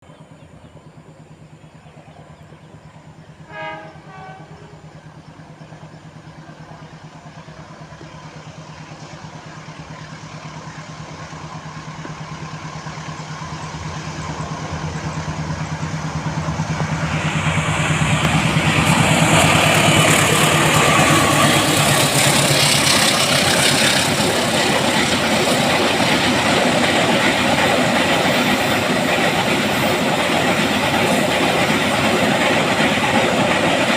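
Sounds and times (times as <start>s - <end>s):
locomotive engine hum: 0.0s - 33.9s
train horn blast: 3.4s - 4.9s
wheels clattering on rail: 5.7s - 33.9s.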